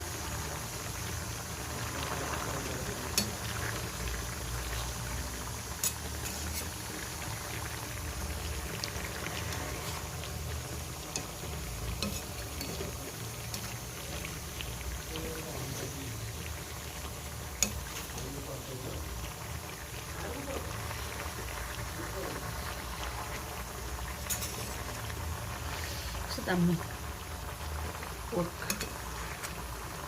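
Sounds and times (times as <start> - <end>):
pot of food boiling: 0.0 - 30.0.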